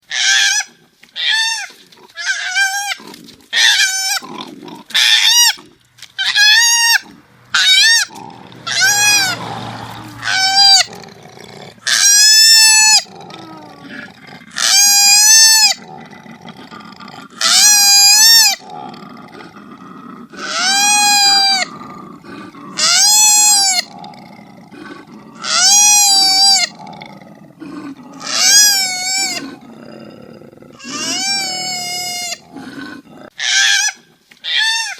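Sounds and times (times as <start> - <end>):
low rasping sound: 7.0 - 12.0
koala calling: 7.6 - 11.0.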